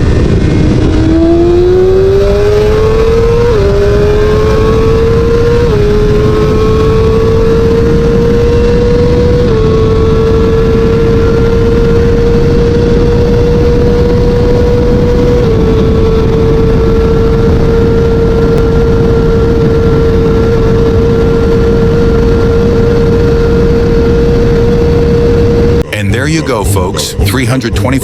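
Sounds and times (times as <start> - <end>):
heavy wind buffeting: 0.0 - 3.9, 7.7 - 25.9
motorcycle engine at high revs: 0.0 - 25.9.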